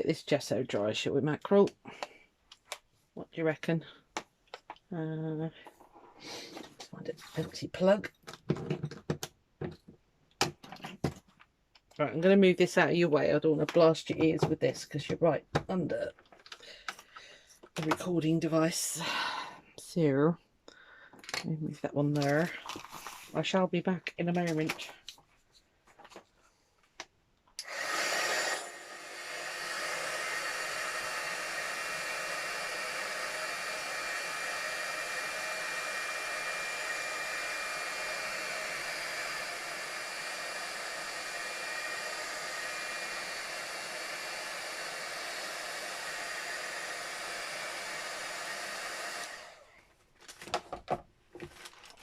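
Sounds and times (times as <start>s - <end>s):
heat gun blowing with whine: 27.6s - 49.7s.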